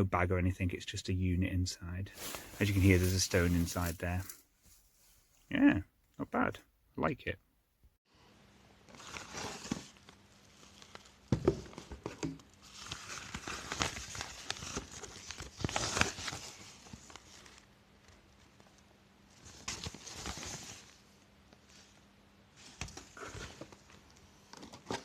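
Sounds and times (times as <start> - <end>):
rustling and crinkling: 2.1 - 5.5, 8.9 - 22.0.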